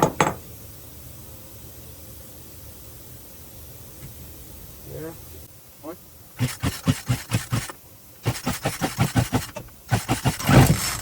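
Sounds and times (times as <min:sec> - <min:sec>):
chainsaw engine turning over: 0:06.4 - 0:11.0.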